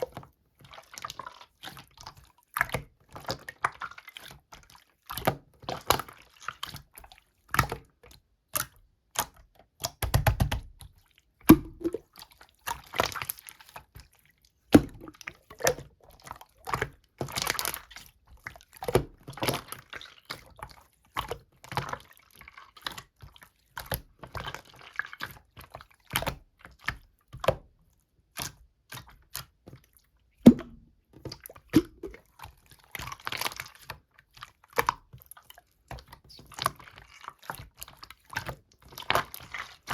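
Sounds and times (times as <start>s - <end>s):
slime squelching and popping: 11.4s - 13.5s, 14.7s - 27.6s, 28.3s - 39.9s.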